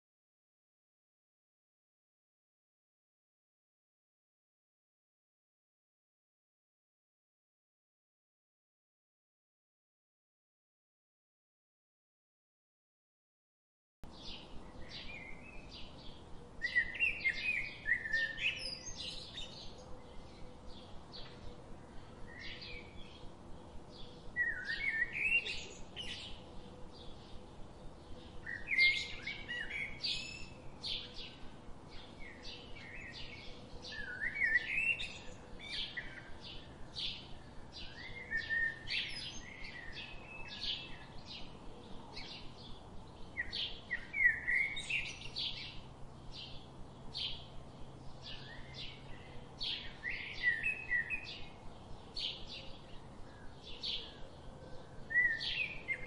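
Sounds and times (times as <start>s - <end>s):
bird song phrase: 14.0s - 56.0s
birds chirping: 14.1s - 56.0s.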